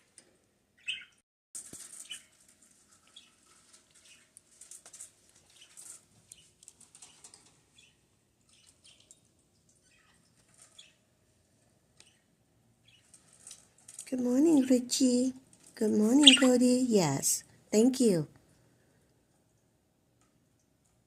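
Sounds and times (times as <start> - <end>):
budgerigars chirping: 0.8 - 1.2, 16.2 - 16.6.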